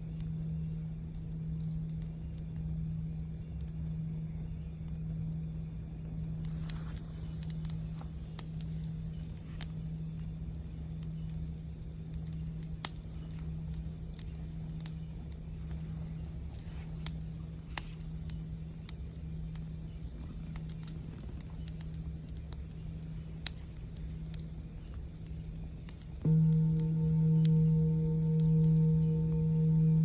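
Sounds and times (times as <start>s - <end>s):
campfire crackling and popping: 0.0s - 30.0s
singing bowl ringing: 26.2s - 30.0s.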